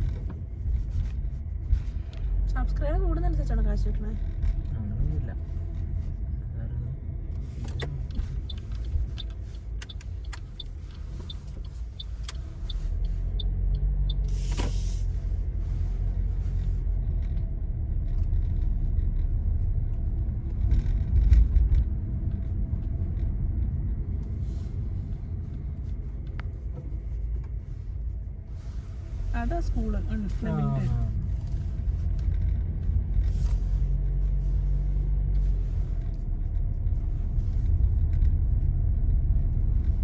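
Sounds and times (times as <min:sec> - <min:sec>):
car interior road rumble: 0:00.0 - 0:40.0.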